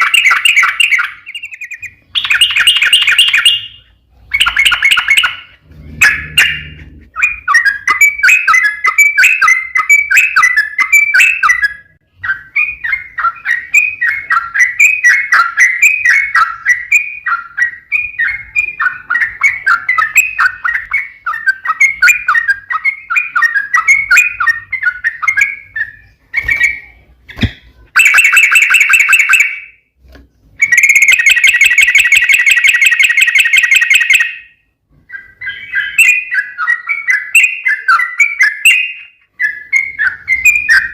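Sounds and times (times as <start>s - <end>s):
bird chattering song: 0.0s - 29.8s, 30.6s - 40.9s
bird rapid trills: 4.4s - 11.3s.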